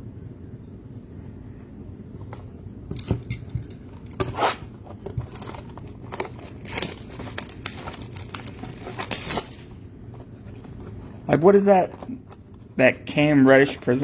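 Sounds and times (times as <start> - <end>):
plastic wrapper crinkling and tearing: 4.4 - 9.8.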